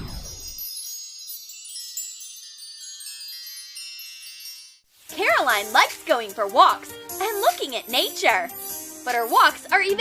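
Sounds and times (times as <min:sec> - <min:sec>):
shimmering chimes: 0:00.0 - 0:06.0
music and voice: 0:05.1 - 0:10.0.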